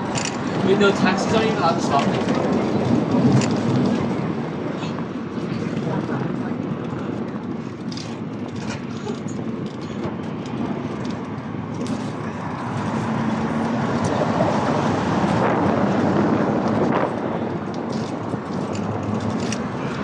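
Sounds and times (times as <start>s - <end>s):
street traffic: 0.0s - 20.0s
nearby vehicle humming: 8.8s - 20.0s.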